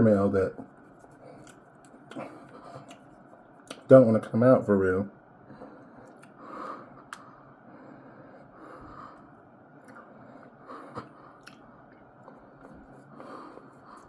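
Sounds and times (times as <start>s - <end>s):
close-up chewing: 0.8s - 3.9s, 5.8s - 7.4s, 9.8s - 14.0s
sharp mouth clicks: 3.7s - 3.9s, 11.0s - 11.7s.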